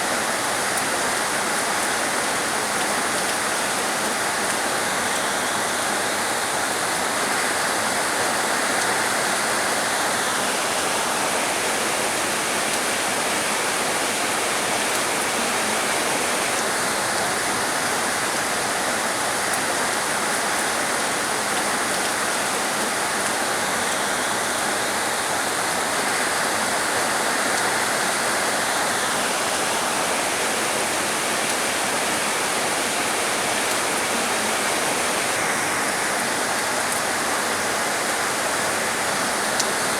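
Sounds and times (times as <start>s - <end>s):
heavy rain hissing: 0.0s - 39.9s
rain patter: 0.0s - 39.9s.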